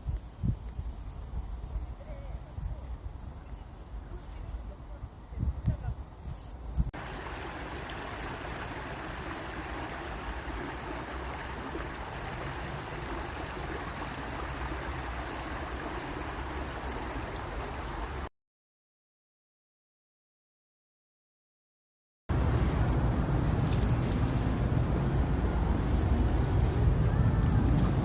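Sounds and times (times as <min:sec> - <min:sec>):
rushing flowing water: 0:07.0 - 0:18.3.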